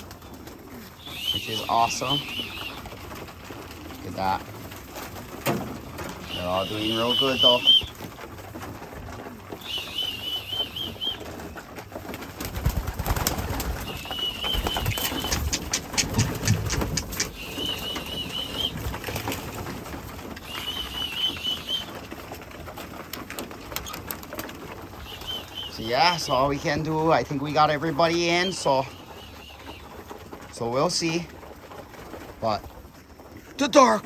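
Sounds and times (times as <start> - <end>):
pigeons: 0.0 - 34.0
sharp clattering: 0.0 - 34.0
warbling whistle trills: 1.0 - 2.8, 6.2 - 7.9, 9.6 - 11.2, 13.8 - 15.3, 17.4 - 18.8, 20.4 - 21.9, 25.0 - 26.3.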